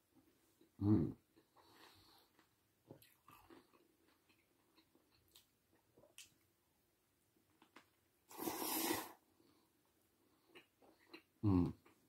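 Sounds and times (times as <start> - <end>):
faint chewing: 0.6 - 6.4, 10.2 - 12.0.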